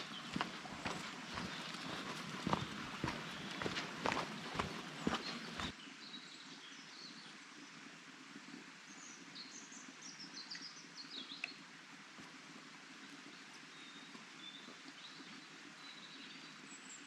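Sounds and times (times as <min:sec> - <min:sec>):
footstep: 0:00.0 - 0:05.7
songbird chirping: 0:00.0 - 0:07.4
faint outdoor background: 0:00.0 - 0:17.0.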